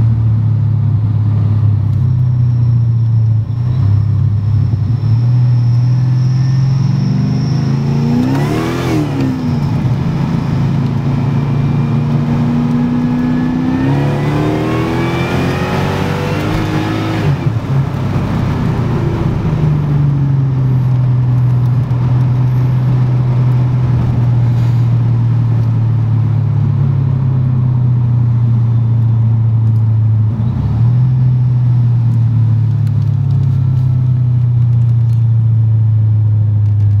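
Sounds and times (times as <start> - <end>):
car engine droning inside cabin: 0.0 - 37.0.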